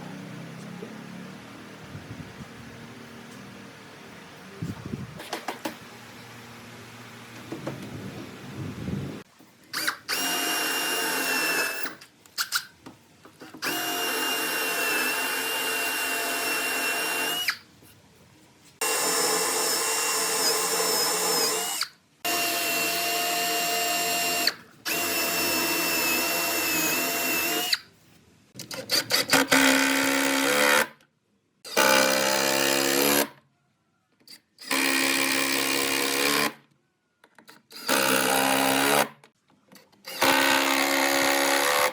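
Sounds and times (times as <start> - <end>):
electric power drill running: 9.8 - 12.0, 13.6 - 17.6, 18.8 - 27.8, 37.8 - 39.1.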